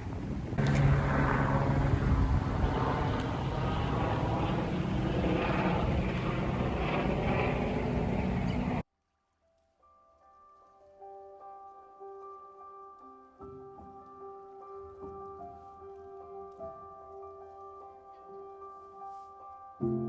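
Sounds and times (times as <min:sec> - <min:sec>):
vehicle engine running: 0:00.6 - 0:08.8.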